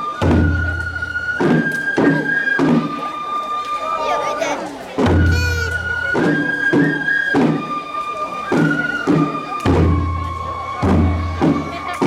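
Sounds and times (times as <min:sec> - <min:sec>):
bamboo flute long notes: 0:00.0 - 0:12.0
drum strokes: 0:05.0 - 0:06.5.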